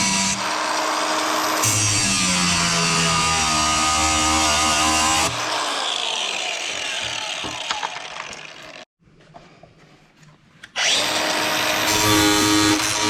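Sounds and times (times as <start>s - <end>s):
angle grinder cutting bolt: 0.0s - 8.8s.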